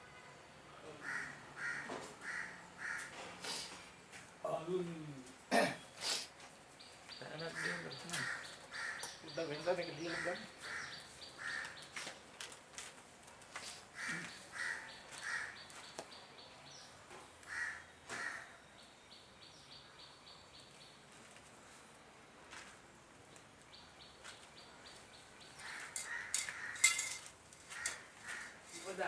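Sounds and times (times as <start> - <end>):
crow cawing: 1.0 - 3.3, 7.4 - 9.3, 10.0 - 12.1, 14.0 - 15.8, 17.5 - 18.6, 25.6 - 29.0.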